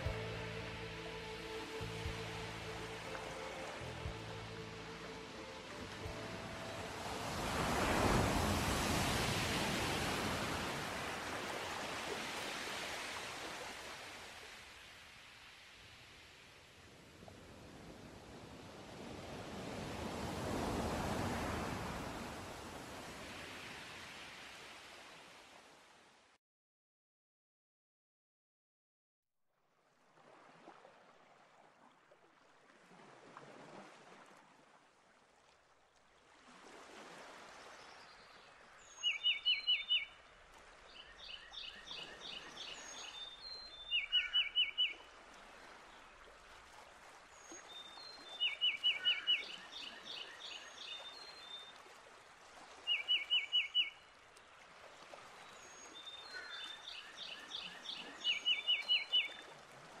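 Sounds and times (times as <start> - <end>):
running water: 0.0 - 17.0
bird soft calls: 38.9 - 40.2, 41.0 - 45.2, 47.4 - 51.6, 52.9 - 54.1, 55.4 - 59.4
songbird singing sharp notes: 38.9 - 40.2, 41.0 - 45.1, 47.5 - 51.6, 52.9 - 54.0, 55.8 - 59.4.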